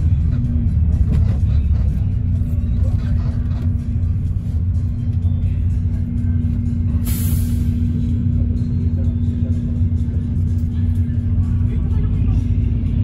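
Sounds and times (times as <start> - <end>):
bus engine rumble: 0.0 - 13.0
music playing: 0.0 - 13.0
road noise: 0.0 - 13.0
short hiss: 7.0 - 7.8.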